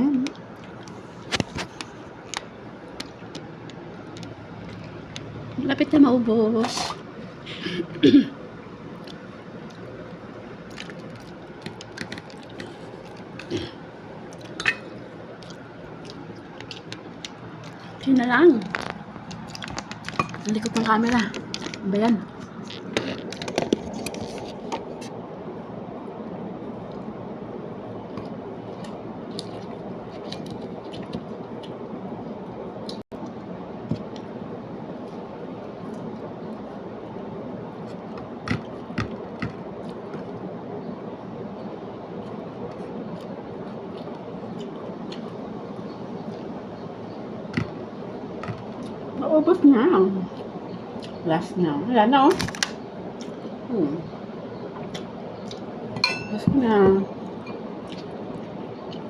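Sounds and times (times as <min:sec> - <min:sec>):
steady background noise: 0:00.0 - 0:59.0
person chewing food: 0:00.3 - 0:05.5, 0:08.9 - 0:18.1, 0:18.7 - 0:25.1, 0:28.1 - 0:31.9, 0:41.5 - 0:49.2, 0:50.3 - 0:51.2, 0:54.8 - 0:56.0, 0:57.2 - 0:59.0.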